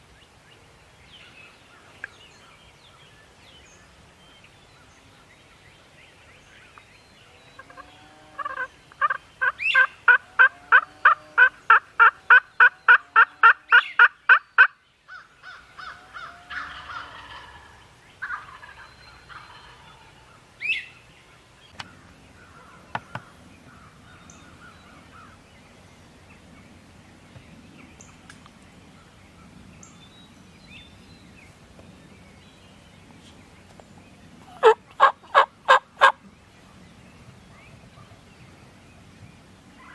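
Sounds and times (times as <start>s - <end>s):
turkey yelps: 8.4s - 14.4s, 34.5s - 36.2s.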